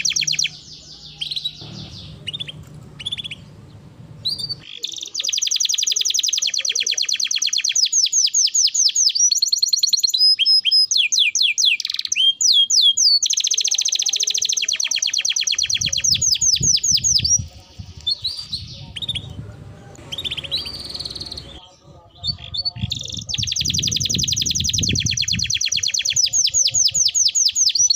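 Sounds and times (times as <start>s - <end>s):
canary singing trills: 0.0s - 27.9s
low rumble: 1.5s - 4.6s, 17.2s - 21.6s.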